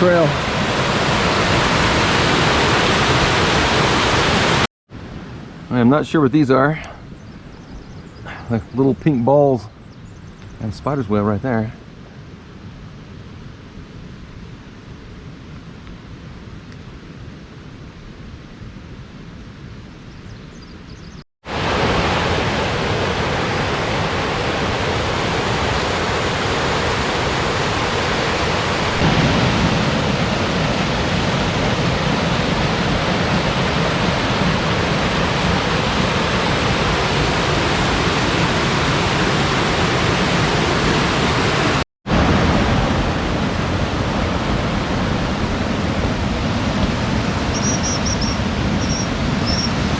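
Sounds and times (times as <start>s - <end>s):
waterfall rushing: 0.0s - 4.7s, 21.5s - 49.9s
faint outdoor ambience: 4.9s - 21.2s.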